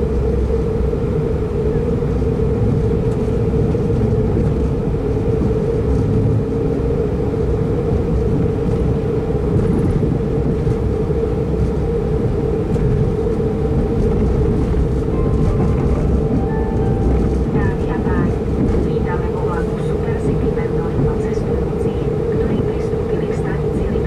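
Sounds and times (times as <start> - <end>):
train interior rumble: 0.0 - 24.0
steady hum: 15.0 - 20.9.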